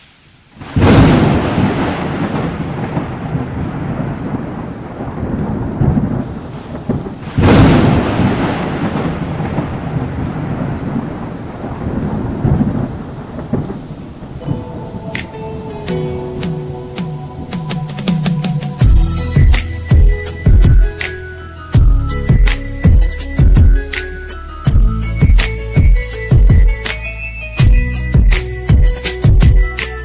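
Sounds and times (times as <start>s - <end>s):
steady rain: 0.0s - 30.0s
thunder rumbling: 0.5s - 29.6s
music: 14.4s - 30.0s.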